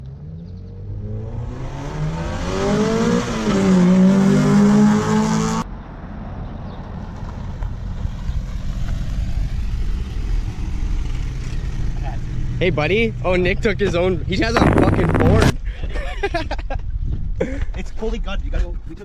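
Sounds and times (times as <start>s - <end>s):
car engine accelerating hard: 0.0s - 5.6s, 7.7s - 15.6s
low rumble: 8.0s - 15.6s.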